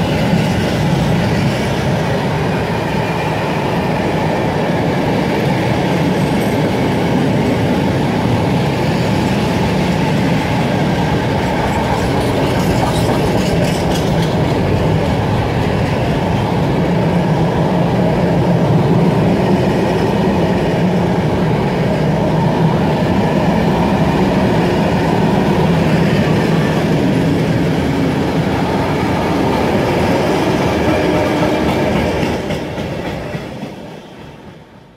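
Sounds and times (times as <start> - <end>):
freight train wheels rumbling: 0.0 - 34.9.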